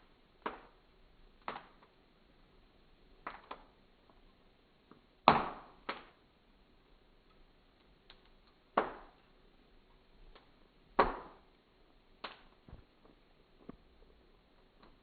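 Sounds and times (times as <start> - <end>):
fire crackling: 0.0 - 15.0
embers popping: 0.3 - 2.0, 3.1 - 6.3, 7.2 - 15.0.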